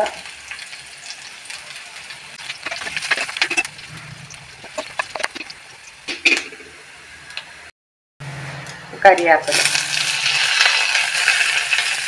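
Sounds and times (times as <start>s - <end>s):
food sizzling in hot oil: 0.0s - 7.1s, 9.4s - 12.0s
steel spoon scraping a pan: 2.4s - 6.6s.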